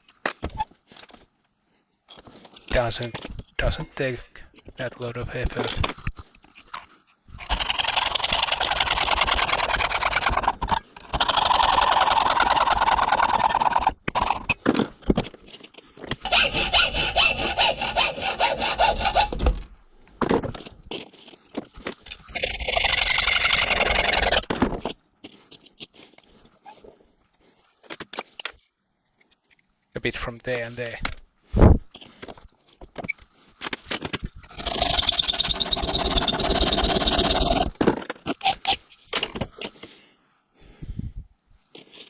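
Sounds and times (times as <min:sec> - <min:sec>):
file rasping on aluminium: 0:16.2 - 0:19.6.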